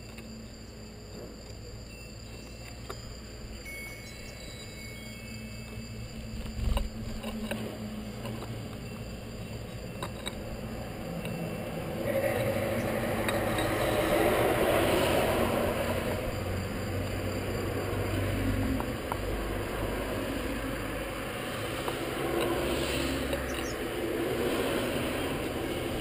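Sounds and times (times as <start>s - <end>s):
faint high chirps: 1.4s - 6.9s
vehicle passing rush: 10.4s - 26.0s.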